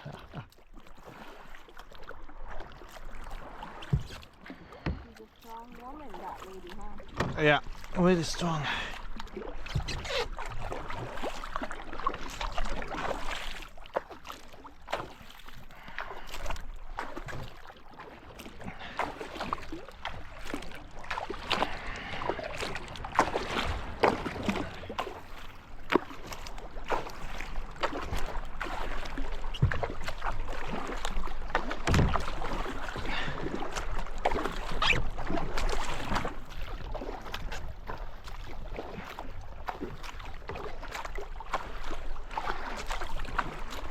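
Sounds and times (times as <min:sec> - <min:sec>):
paddle splashing in water: 0:00.0 - 0:43.9.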